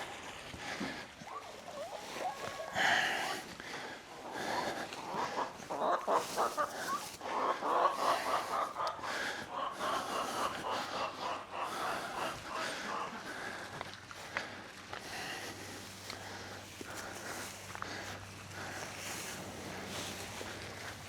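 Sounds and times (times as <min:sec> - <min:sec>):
poultry clucking: 0:01.2 - 0:14.6.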